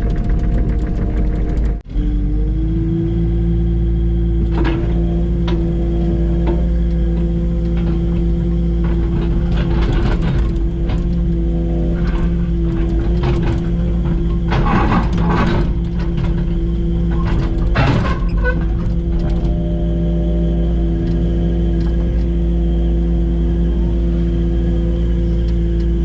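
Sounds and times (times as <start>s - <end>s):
machine knocks and clanks: 0.0s - 1.8s, 4.4s - 22.6s
excavator engine running: 0.0s - 26.0s.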